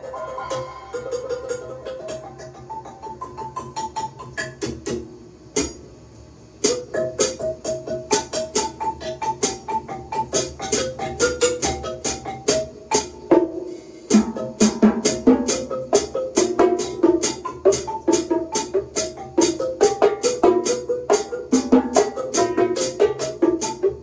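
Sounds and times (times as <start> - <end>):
drum kit played quickly: 4.4 - 5.8, 6.6 - 24.0.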